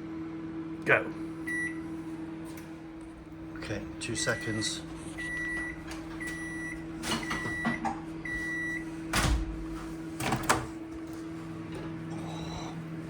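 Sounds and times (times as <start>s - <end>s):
microwave hum: 0.0s - 13.0s
microwave beeps: 1.4s - 2.0s, 4.2s - 9.4s.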